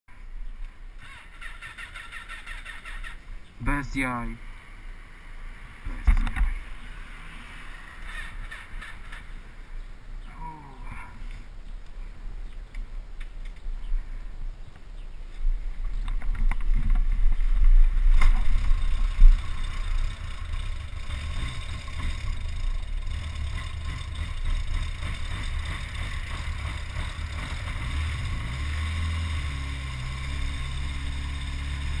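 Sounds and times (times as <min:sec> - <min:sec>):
wind rumble: 0:11.1 - 0:28.5
motorcycle engine running: 0:17.4 - 0:32.0.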